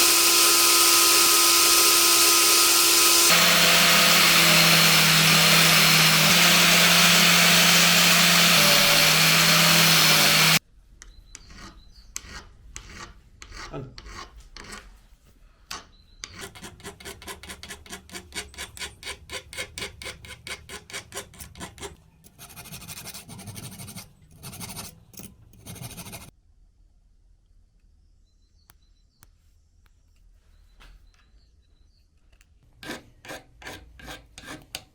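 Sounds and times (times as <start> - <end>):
power tool humming: 0.0 - 10.6
hand rubbing with scraping rasp: 11.4 - 15.3, 16.2 - 26.3, 32.8 - 34.9.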